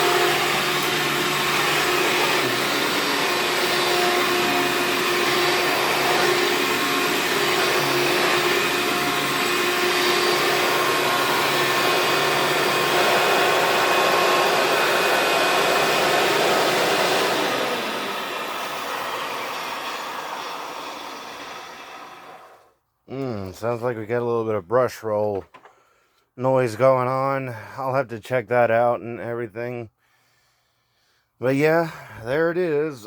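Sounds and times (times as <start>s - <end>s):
upright vacuum cleaner running: 0.0s - 22.7s
vacuum brush roll noise: 0.0s - 22.7s.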